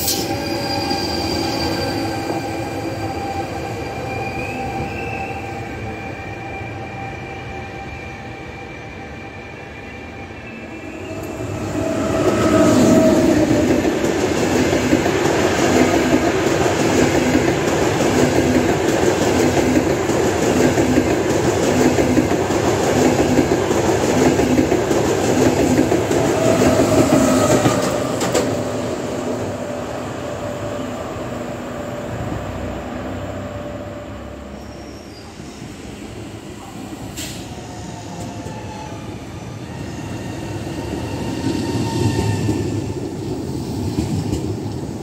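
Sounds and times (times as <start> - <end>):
train wheels rushing on rail: 0.0 - 45.0
clickety-clack over rail joints: 12.1 - 28.6, 41.8 - 45.0.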